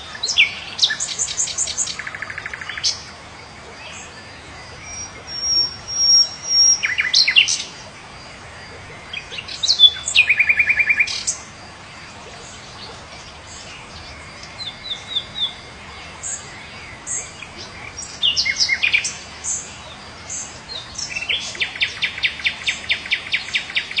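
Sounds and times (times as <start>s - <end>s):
birds calling and singing: 0.0s - 24.0s.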